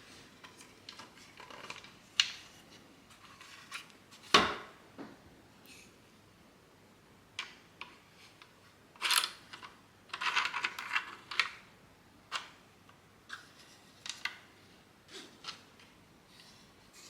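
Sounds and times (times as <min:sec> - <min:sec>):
plastic parts scraping and rattling: 0:00.3 - 0:04.4, 0:07.4 - 0:11.7
plastic parts clicking: 0:07.4 - 0:11.6.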